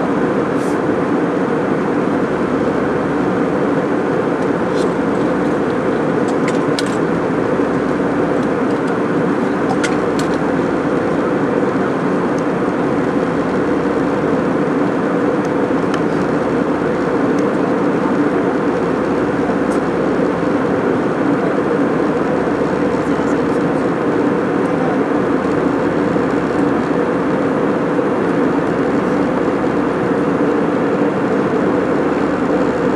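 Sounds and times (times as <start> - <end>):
airliner cabin rumble: 0.0 - 32.9.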